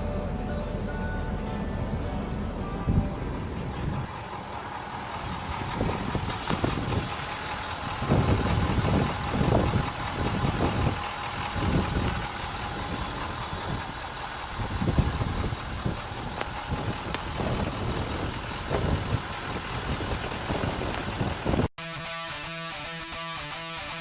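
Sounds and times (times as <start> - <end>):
pickup engine idling: 0.0 - 21.7
wind buffeting microphone: 2.8 - 21.7.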